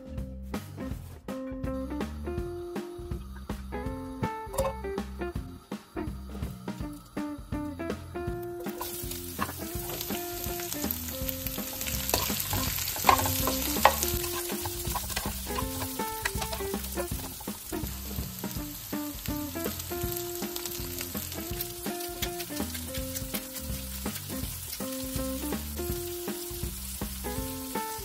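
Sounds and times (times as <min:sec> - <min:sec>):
broccoli sizzling in oil: 0:08.6 - 0:28.0
spatula stirring in wok: 0:08.6 - 0:28.0.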